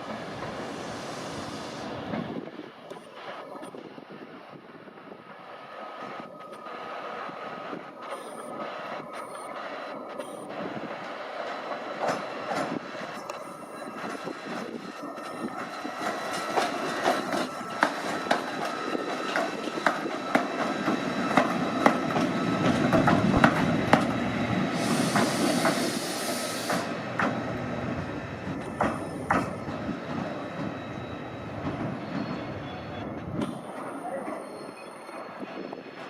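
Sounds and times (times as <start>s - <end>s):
train rumbling past: 0.0s - 36.0s
burst of hiss: 0.6s - 2.0s, 24.7s - 27.0s
wheels clicking over rail joints: 10.2s - 24.2s.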